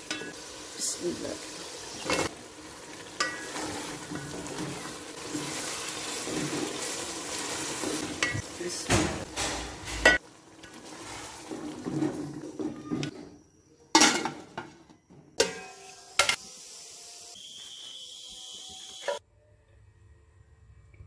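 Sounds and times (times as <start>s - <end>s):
food sizzling in hot oil: 0.0s - 13.1s, 15.4s - 19.2s
metal spoon clinking against pot: 3.2s - 3.6s.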